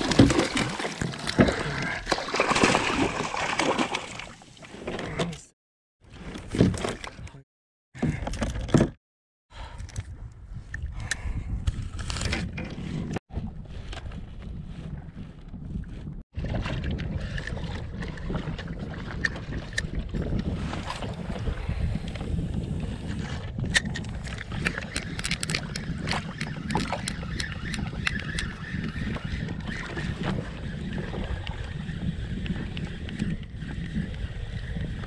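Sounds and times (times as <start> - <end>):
water splashing: 0.0 - 4.8
wind buffeting microphone: 9.6 - 35.0.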